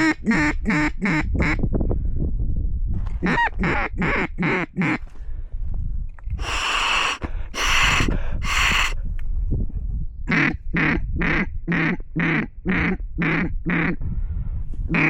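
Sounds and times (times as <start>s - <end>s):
duck call quacks: 0.0s - 1.6s, 3.2s - 5.0s, 6.4s - 9.0s, 10.3s - 14.0s
wind rumbling on microphone: 0.0s - 15.0s.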